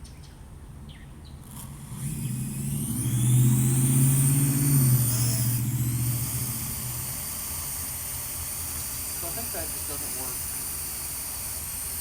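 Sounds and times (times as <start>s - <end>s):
drone rotors whirring: 1.4s - 12.0s.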